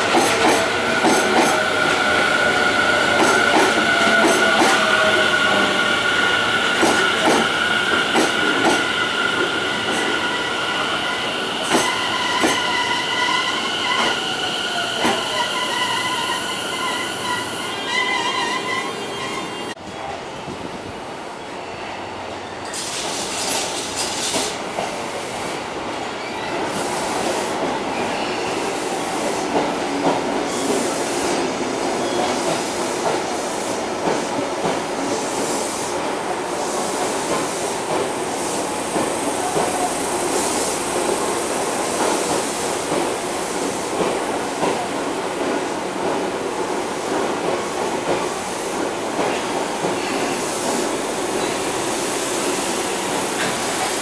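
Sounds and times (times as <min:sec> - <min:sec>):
high-pitched wheel and brake squeal: 0:10.0 - 0:19.8.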